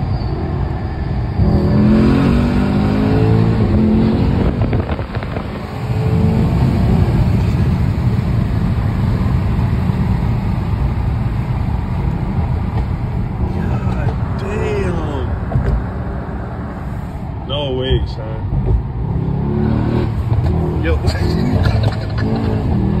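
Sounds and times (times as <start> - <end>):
car engine accelerating: 1.3 - 17.1.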